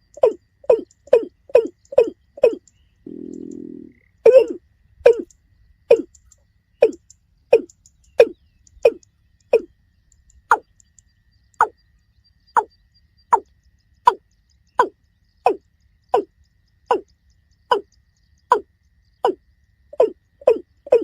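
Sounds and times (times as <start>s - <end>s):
bird giving low calls: 0.0s - 6.2s, 6.8s - 9.7s, 14.8s - 16.3s, 16.9s - 17.1s, 17.7s - 17.9s, 18.5s - 21.0s.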